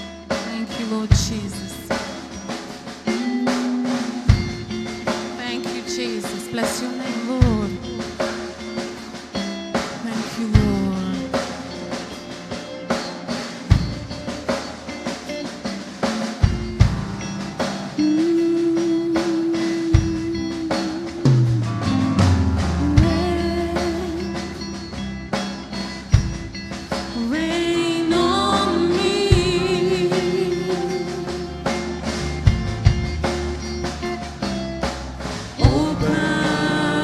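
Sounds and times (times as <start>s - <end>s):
drum kit playing: 0.0s - 37.0s
bass and sustained notes: 20.0s - 37.0s.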